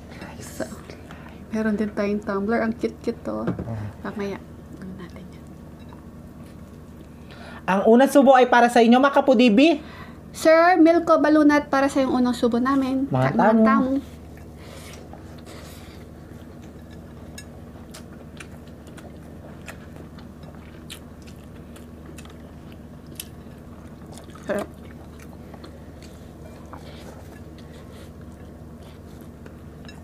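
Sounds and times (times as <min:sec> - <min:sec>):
steady low hum: 0:00.0 - 0:30.0
people chewing and biting: 0:14.3 - 0:30.0.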